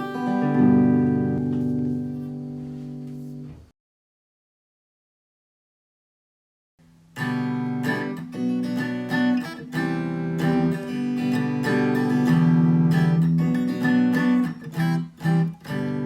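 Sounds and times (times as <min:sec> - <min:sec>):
acoustic guitar strumming chords: 0:00.0 - 0:03.6, 0:07.2 - 0:16.0.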